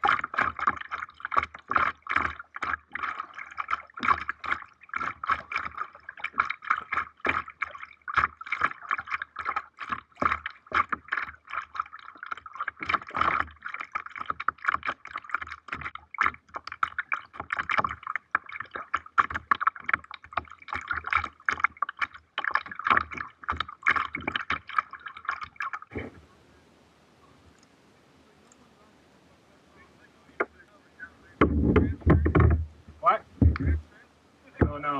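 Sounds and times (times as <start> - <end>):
water splashing from paddling: 0.0 - 34.9.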